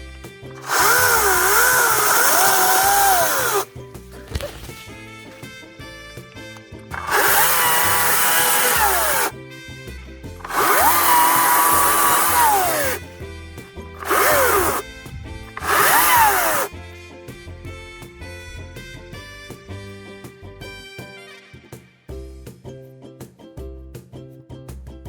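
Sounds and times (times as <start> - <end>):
electric chainsaw whining: 0.6 - 3.7, 6.9 - 9.3, 10.4 - 13.0, 14.0 - 14.8, 15.5 - 16.7.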